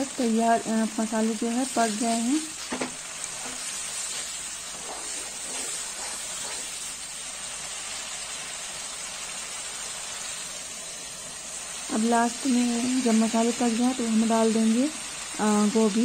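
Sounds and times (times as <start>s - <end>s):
paste sizzling in oil: 0.0s - 16.0s
wooden spatula stirring: 2.6s - 7.0s.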